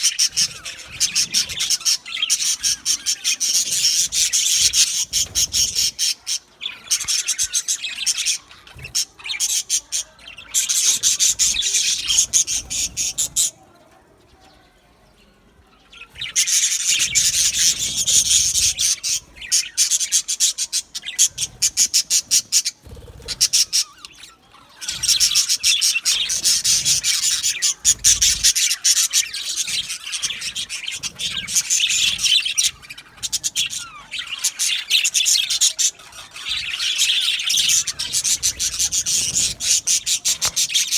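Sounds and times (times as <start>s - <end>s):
budgerigars chirping and warbling: 0.0s - 40.9s.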